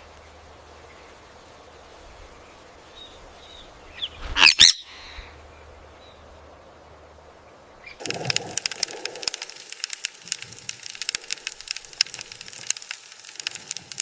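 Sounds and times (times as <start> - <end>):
steady hiss: 0.0 - 14.0
bird shrill call: 4.0 - 5.2
crackling rustle: 5.4 - 14.0
faint chirps: 7.8 - 14.0.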